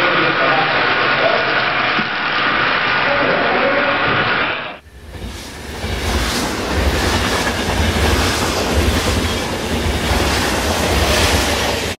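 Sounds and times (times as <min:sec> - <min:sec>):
train rumbling and clattering: 0:04.8 - 0:11.9.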